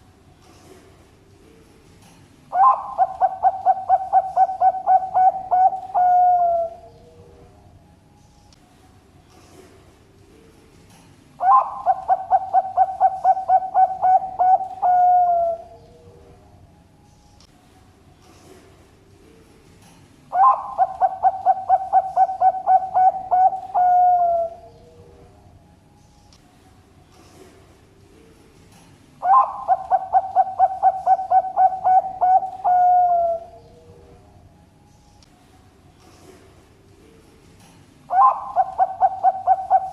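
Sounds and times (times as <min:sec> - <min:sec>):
dove cooing song: 0:02.5 - 0:07.6, 0:11.4 - 0:16.4, 0:20.3 - 0:25.4, 0:29.2 - 0:34.3, 0:38.1 - 0:39.9.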